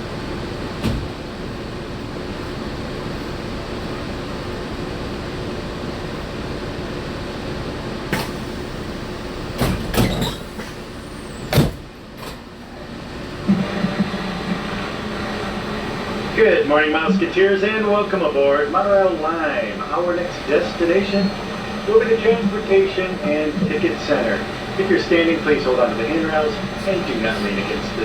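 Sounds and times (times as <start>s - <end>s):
monorail car running noise: 0.0s - 28.0s.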